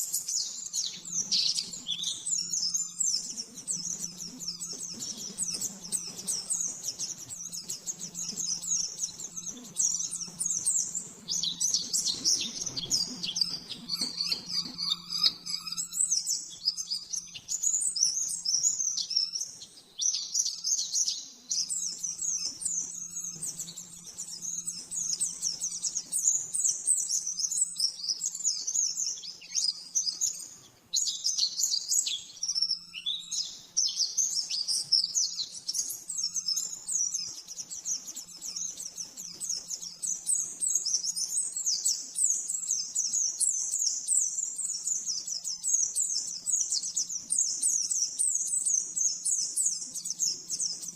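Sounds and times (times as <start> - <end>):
bird twittering song: 0.0 - 50.9
faint low hum: 0.2 - 19.2.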